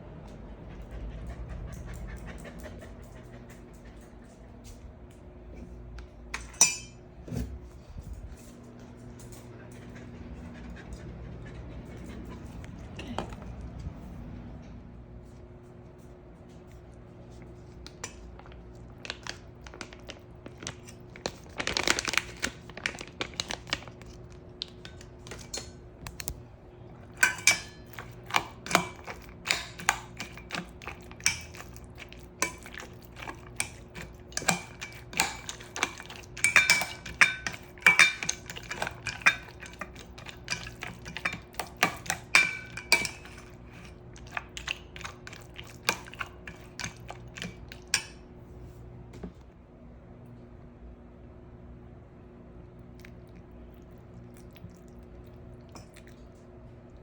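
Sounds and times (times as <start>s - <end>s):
dishes and cutlery clattering: 6.4s - 7.5s, 27.0s - 31.8s, 32.4s - 48.1s.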